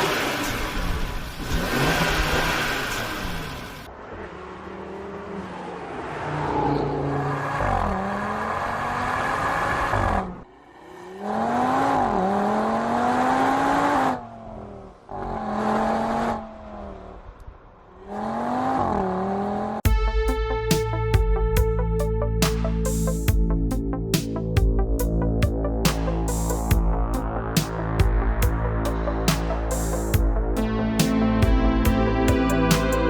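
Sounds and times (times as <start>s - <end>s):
car engine accelerating hard: 0.0s - 10.5s, 11.1s - 17.3s
music: 19.9s - 33.0s.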